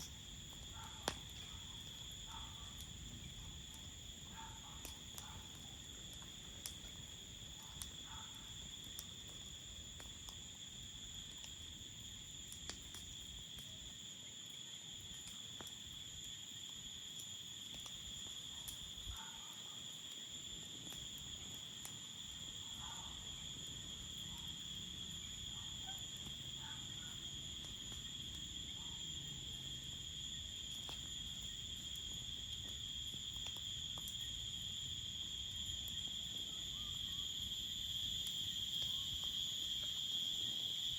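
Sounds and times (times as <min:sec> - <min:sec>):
campfire crackling: 0:00.0 - 0:40.9
crickets chirping: 0:00.0 - 0:40.9.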